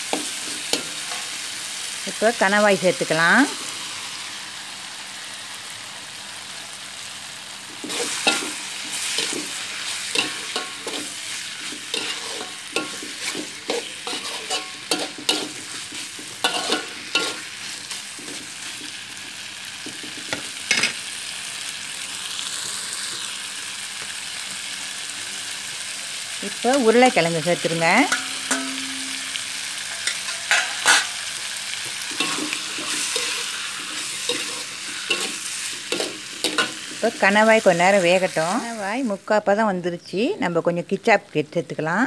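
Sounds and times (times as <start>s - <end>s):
food sizzling in a wok: 0.0s - 42.0s
metal utensil scraping a pan: 7.8s - 19.0s, 28.1s - 37.2s.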